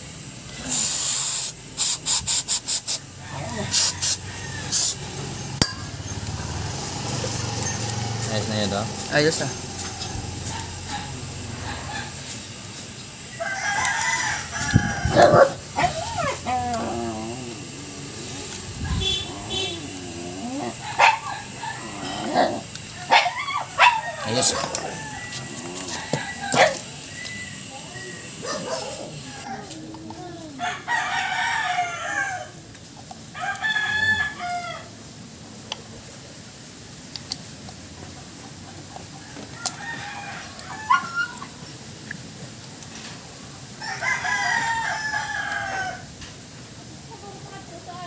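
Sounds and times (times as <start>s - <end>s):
rooster crowing: 3.1s - 8.3s, 9.2s - 12.5s, 13.2s - 29.9s, 30.5s - 32.7s, 33.3s - 35.0s, 39.2s - 41.4s, 43.8s - 46.2s.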